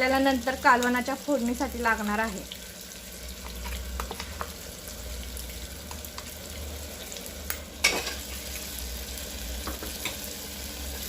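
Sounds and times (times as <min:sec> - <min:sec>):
paste sizzling in hot oil: 0:00.0 - 0:11.0.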